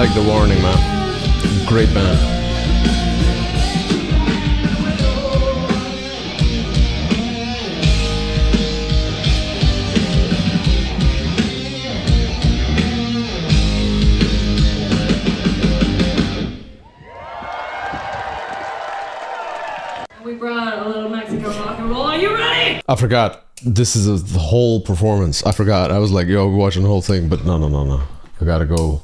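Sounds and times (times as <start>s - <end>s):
bass guitar: 0.0s - 16.7s
electric guitar: 0.0s - 16.7s
drums: 0.0s - 18.3s.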